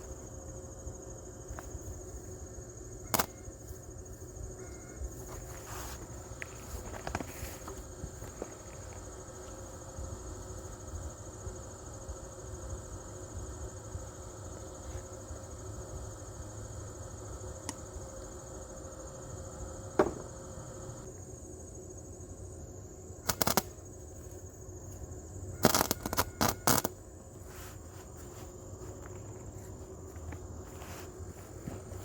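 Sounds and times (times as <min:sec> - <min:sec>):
crickets chirring: 0:00.0 - 0:32.0
welder arc crackling bursts: 0:23.2 - 0:23.7, 0:25.6 - 0:27.0.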